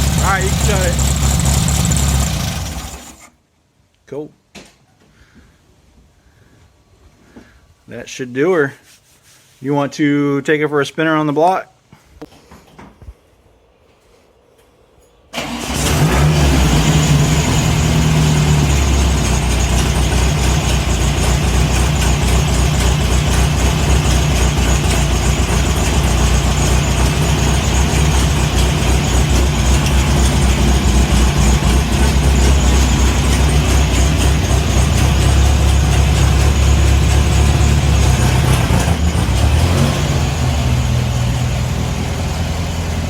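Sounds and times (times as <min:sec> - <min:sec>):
car engine starting and running: 0:00.0 - 0:03.3, 0:15.4 - 0:43.0.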